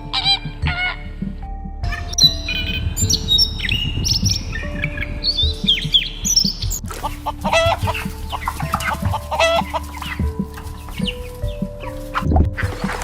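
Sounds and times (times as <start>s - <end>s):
small birds chirping: 1.8s - 13.0s
chickens clucking: 6.8s - 13.0s.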